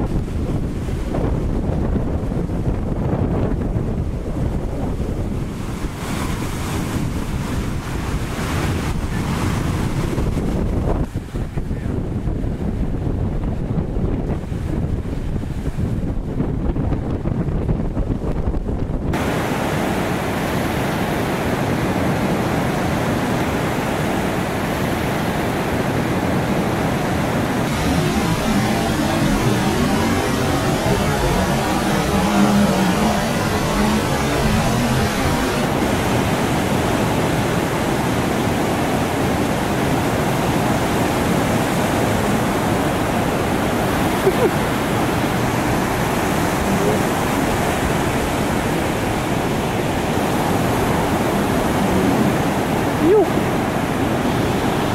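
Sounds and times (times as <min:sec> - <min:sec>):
wind buffeting microphone: 0:00.0 - 0:19.2
water and wind rushing: 0:00.0 - 0:54.9.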